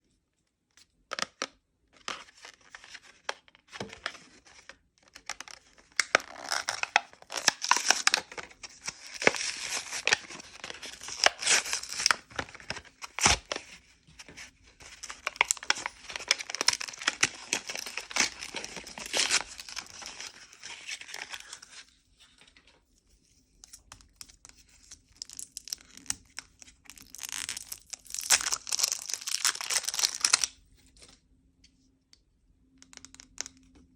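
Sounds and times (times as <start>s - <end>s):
packaging crinkling: 2.2s - 21.8s, 25.1s - 30.6s.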